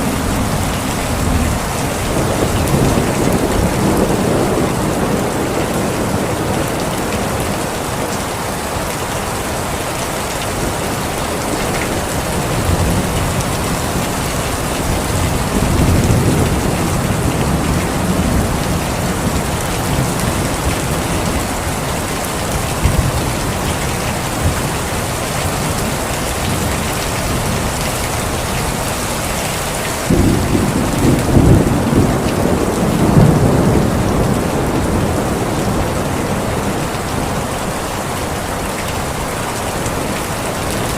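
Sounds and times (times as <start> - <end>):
rolling thunder: 0.0 - 8.0, 10.6 - 21.7, 30.1 - 37.5
heavy rain: 0.0 - 40.9.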